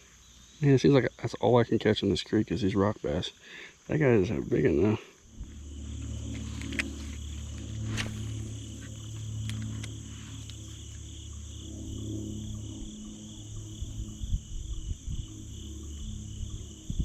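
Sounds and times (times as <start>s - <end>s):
crickets and insects chirping: 0.0s - 17.0s
low rumble: 5.2s - 17.0s.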